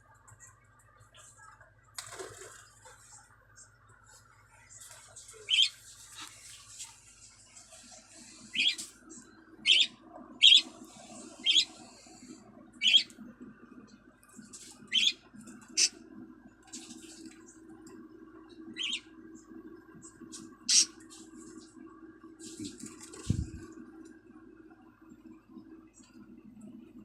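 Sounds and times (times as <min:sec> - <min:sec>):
lovebirds chirping: 0:05.4 - 0:05.8, 0:08.5 - 0:08.8, 0:09.6 - 0:11.8, 0:12.8 - 0:13.1, 0:14.9 - 0:15.9, 0:18.8 - 0:19.0, 0:20.7 - 0:20.9.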